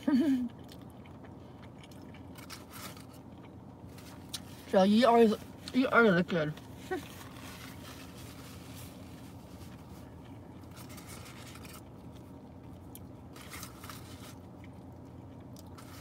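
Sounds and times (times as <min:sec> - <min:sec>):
steady low hum: 0:00.0 - 0:16.0
quiet chewing: 0:00.4 - 0:04.6, 0:06.6 - 0:16.0
faint scratchy rustles: 0:06.8 - 0:11.8.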